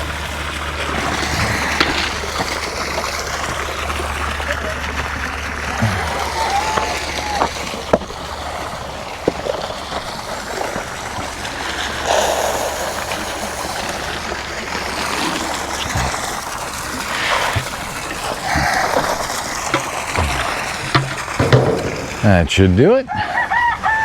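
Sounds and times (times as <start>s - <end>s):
water running and splashing: 0.0s - 22.5s
sharp knocks: 18.5s - 22.7s.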